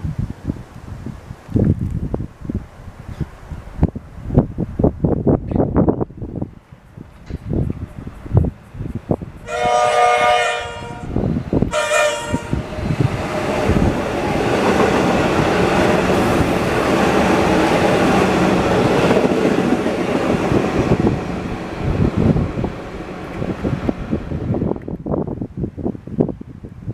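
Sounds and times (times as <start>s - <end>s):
train wheels rumbling on rails: 3.0s - 26.8s
train horn blasts: 9.4s - 12.6s.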